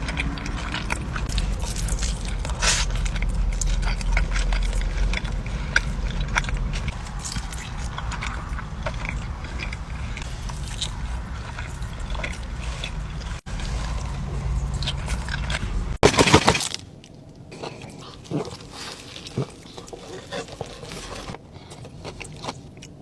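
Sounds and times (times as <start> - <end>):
steady low hum: 0.0 - 16.5
person chewing food: 0.0 - 16.7, 17.4 - 23.0.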